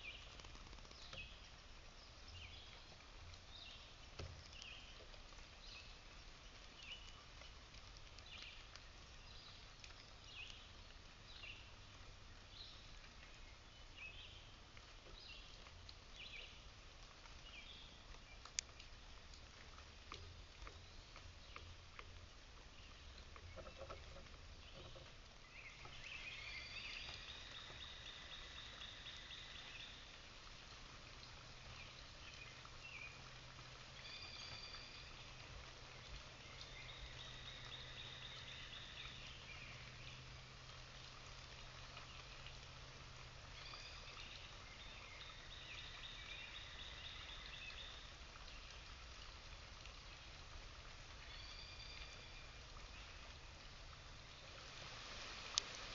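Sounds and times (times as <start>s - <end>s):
faint steady hiss: 0.0s - 55.9s.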